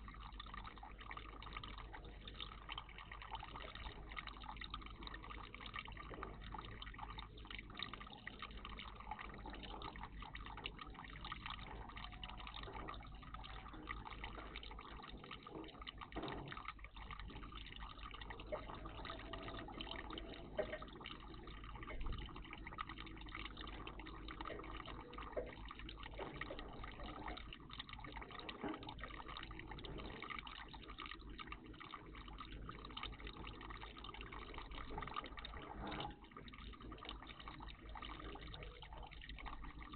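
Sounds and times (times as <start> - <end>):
water splashes: 0.0 - 39.9
water trickling and dripping: 0.0 - 39.9.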